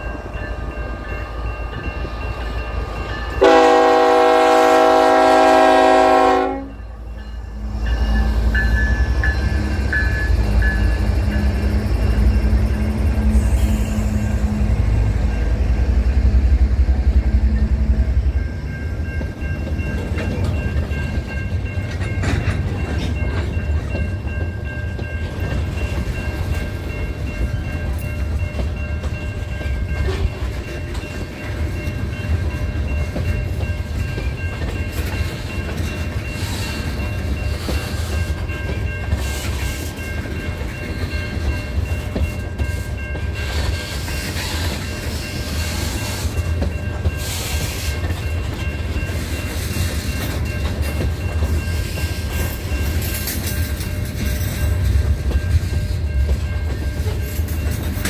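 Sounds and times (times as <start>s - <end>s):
diesel locomotive engine running: 0.0s - 58.0s
wheels clacking over rail joints: 19.0s - 58.0s.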